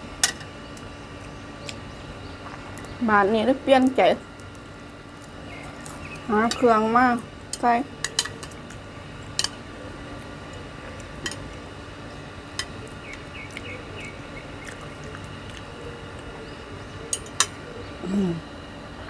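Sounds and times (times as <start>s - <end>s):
faint steady background noise: 0.0s - 19.0s
utensils clinking against a dish: 7.5s - 8.6s, 9.3s - 9.6s, 11.2s - 11.5s.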